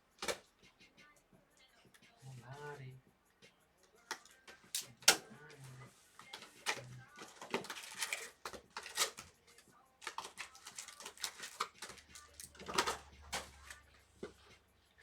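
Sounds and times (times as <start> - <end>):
cardboard and plastic crinkling: 6.3 - 9.3, 10.0 - 13.8.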